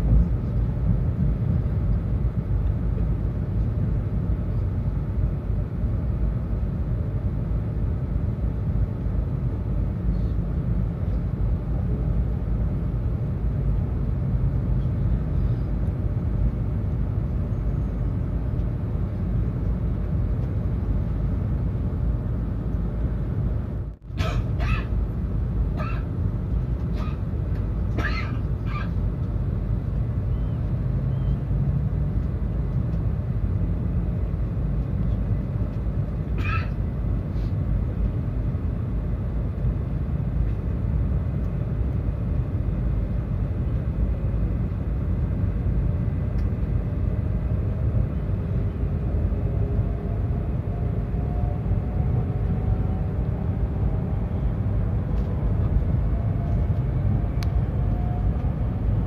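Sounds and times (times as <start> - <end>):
train rumbling: 0.0 - 59.0
rising whine: 46.1 - 59.0.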